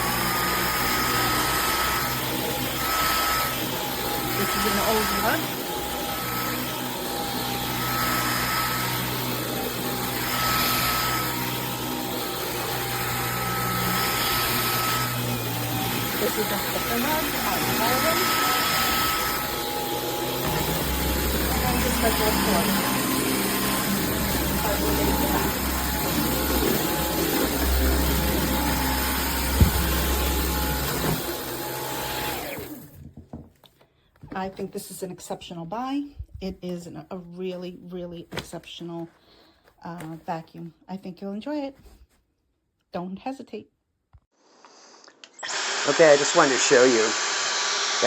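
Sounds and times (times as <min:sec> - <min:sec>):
vacuum cleaner running: 0:00.0 - 0:33.1, 0:45.4 - 0:48.0
vacuum cleaner head bump: 0:29.5 - 0:31.3.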